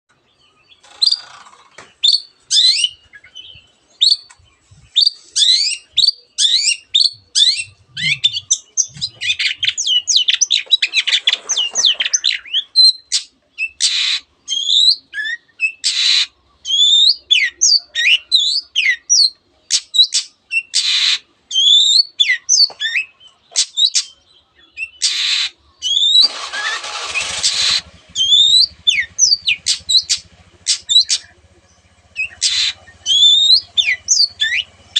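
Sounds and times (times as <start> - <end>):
harsh rasping bird calls: 0.1 - 34.9
bird singing whistled notes: 2.0 - 26.3, 28.1 - 34.8.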